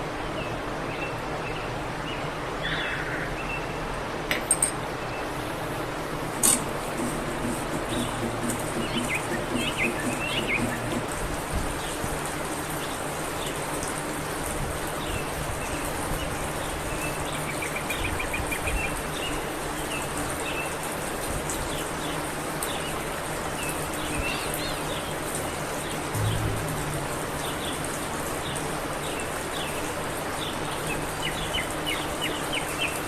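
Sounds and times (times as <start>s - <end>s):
small birds chirping: 7.7s - 12.0s.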